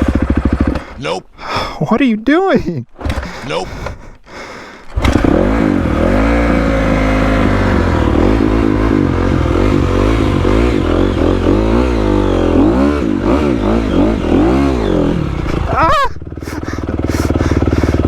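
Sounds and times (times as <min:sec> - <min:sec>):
dirt bike engine revving: 0:00.0 - 0:01.0, 0:04.9 - 0:18.0.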